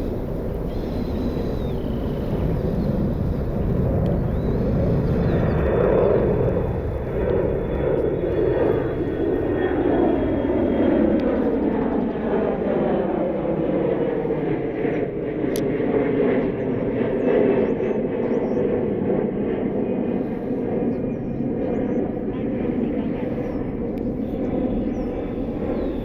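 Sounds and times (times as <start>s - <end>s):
faint high whine: 0.0s - 10.8s
jet engines roaring: 0.0s - 26.0s.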